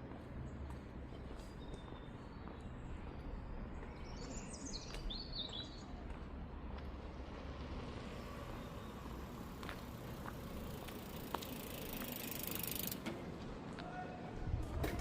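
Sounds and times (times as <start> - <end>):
fast mechanical ratcheting tick: 11.0 - 13.0.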